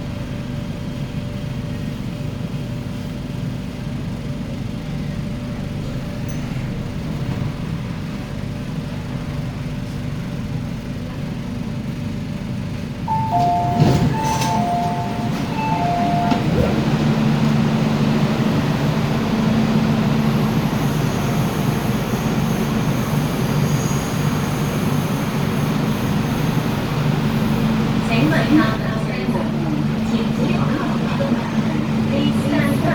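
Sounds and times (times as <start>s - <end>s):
train equipment humming: 0.0s - 32.9s
train pulling away hum: 0.0s - 32.9s
two-tone door warning beeps: 13.1s - 18.2s
train doors shutting knock: 13.1s - 20.3s.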